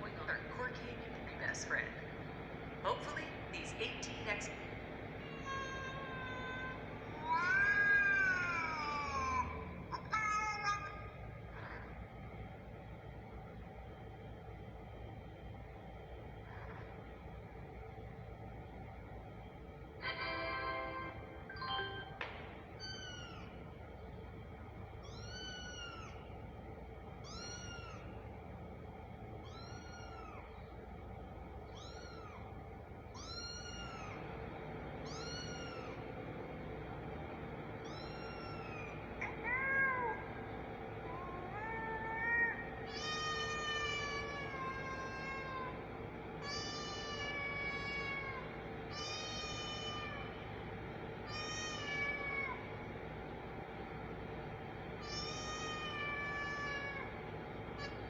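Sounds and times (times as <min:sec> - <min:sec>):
kitten meowing: 0:05.2 - 0:10.9, 0:22.8 - 0:23.5, 0:25.0 - 0:26.2, 0:27.2 - 0:28.1, 0:29.4 - 0:30.5, 0:31.7 - 0:32.5, 0:33.2 - 0:34.2, 0:35.1 - 0:36.0, 0:37.8 - 0:40.2.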